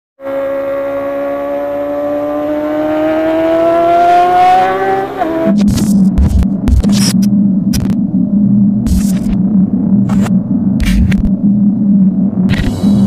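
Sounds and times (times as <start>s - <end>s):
motorcycle engine revving hard: 0.2s - 6.3s
low hum: 0.3s - 13.0s.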